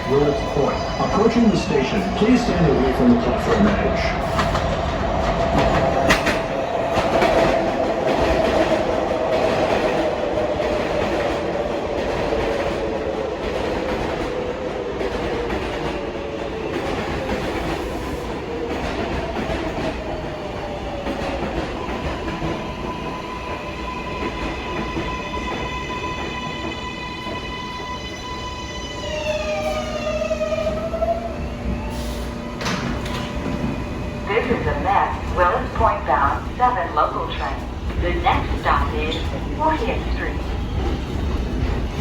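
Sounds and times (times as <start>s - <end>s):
train wheels clacking on rails: 1.3s - 28.2s, 31.5s - 42.0s.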